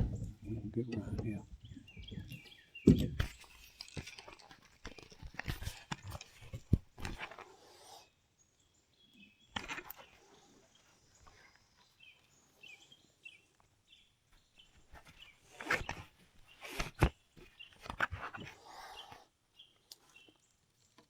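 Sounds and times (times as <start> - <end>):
handling knocks and click: 0.0 - 7.4, 14.7 - 18.6
faint high wildlife chirps: 6.5 - 21.0.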